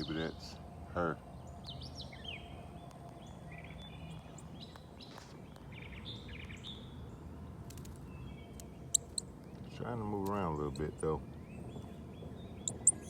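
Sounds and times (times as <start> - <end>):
birds chirping: 0.0 - 13.0
low outdoor rumble: 0.0 - 13.0
sharp click: 9.0 - 9.2, 12.7 - 13.0.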